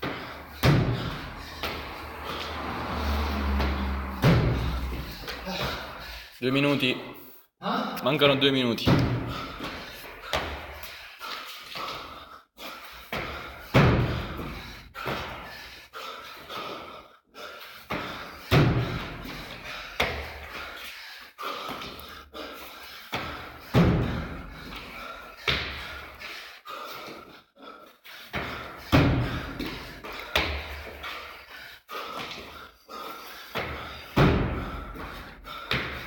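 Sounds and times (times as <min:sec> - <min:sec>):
heavy workout thuds: 0:00.0 - 0:06.3, 0:08.8 - 0:11.0, 0:12.9 - 0:15.7, 0:17.7 - 0:20.8, 0:23.1 - 0:26.3, 0:28.3 - 0:31.4, 0:32.1 - 0:36.0.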